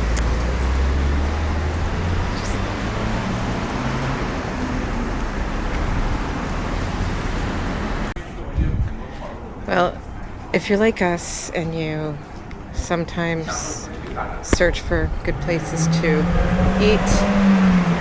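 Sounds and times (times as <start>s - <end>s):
road traffic: 0.0s - 8.5s, 11.8s - 18.0s
low engine rumble: 0.0s - 9.1s.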